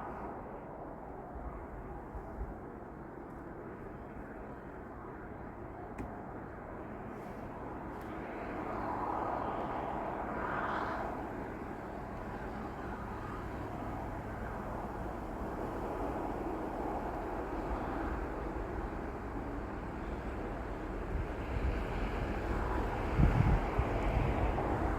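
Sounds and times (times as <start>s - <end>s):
freight train wheels rumbling: 11.0s - 24.9s.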